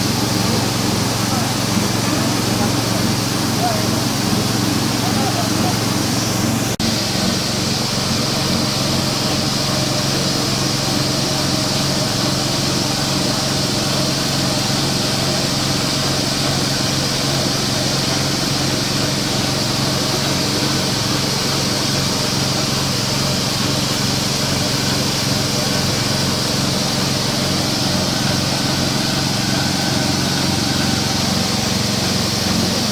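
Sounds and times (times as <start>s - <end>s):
pellet crumble machine droning: 0.0s - 32.9s.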